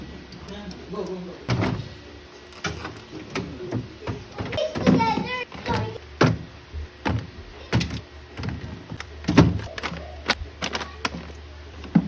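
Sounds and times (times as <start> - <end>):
fridge hum: 0.0 - 12.0
knocks of items in a fridge: 2.6 - 12.0.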